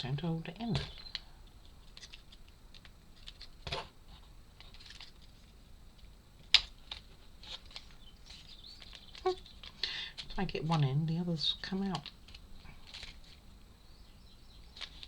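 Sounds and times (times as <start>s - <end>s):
wooden puzzle parts clicking: 0.8s - 3.5s, 6.4s - 10.8s.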